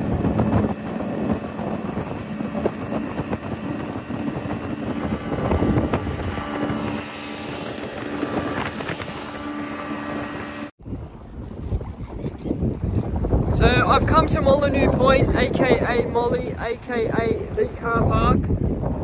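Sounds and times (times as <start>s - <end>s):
motorboat engine drone: 0.0s - 13.4s
water rushing against hull: 0.0s - 19.0s
wind on microphone: 0.0s - 19.0s.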